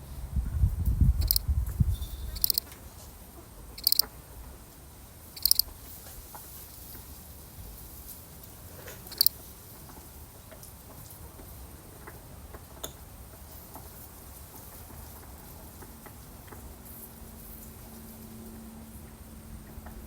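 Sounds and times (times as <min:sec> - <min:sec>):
cricket chirping: 0:01.2 - 0:01.4, 0:02.4 - 0:02.6, 0:03.8 - 0:04.0, 0:05.4 - 0:05.7, 0:09.1 - 0:09.3.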